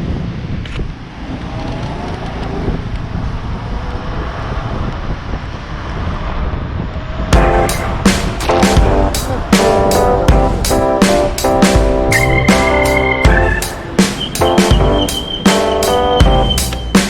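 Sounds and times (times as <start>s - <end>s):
low road rumble: 0.0s - 17.0s
wind buffeting microphone: 2.7s - 14.4s
music with drums: 7.4s - 17.0s
rising motor pitch: 7.4s - 17.0s.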